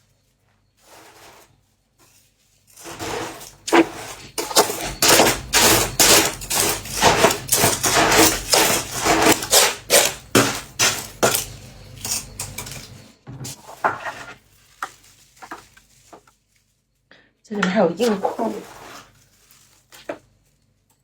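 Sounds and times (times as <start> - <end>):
frost crunching by hand: 2.6 - 13.0, 13.6 - 16.7, 18.0 - 20.6.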